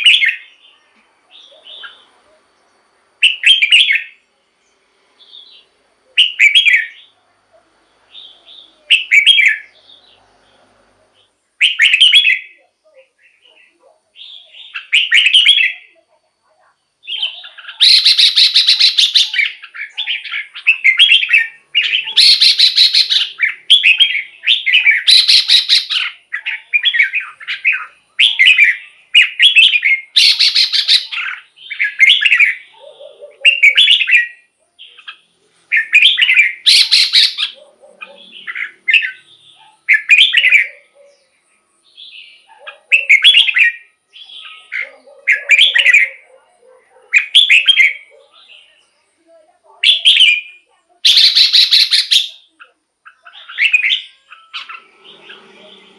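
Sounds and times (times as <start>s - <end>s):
bulbul singing whistled phrases: 0.0s - 2.4s, 3.2s - 4.2s, 5.2s - 7.2s, 8.1s - 10.2s, 11.2s - 16.1s, 17.0s - 46.4s, 47.2s - 49.2s, 49.8s - 55.9s.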